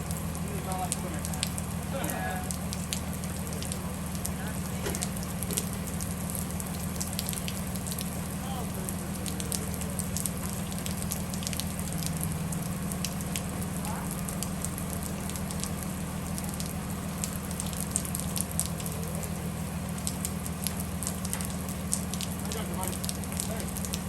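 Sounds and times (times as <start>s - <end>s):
bus engine humming: 0.0s - 24.0s
rain ticking on windows and roof: 0.0s - 24.0s.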